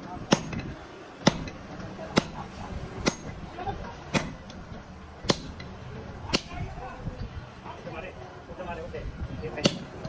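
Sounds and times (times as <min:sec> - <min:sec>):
hammer striking steel on anvil: 0:00.3 - 0:03.5, 0:04.1 - 0:04.6, 0:05.3 - 0:06.7.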